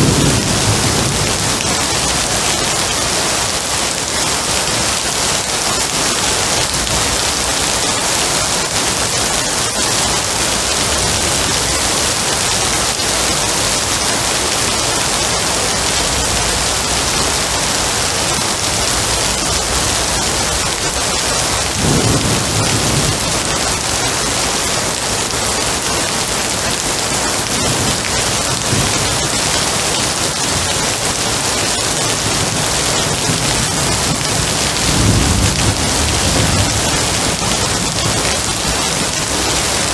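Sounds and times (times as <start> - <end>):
low thunder rumble: 0.0 - 3.5, 15.9 - 24.6, 32.3 - 39.8
rain hissing: 0.0 - 39.9.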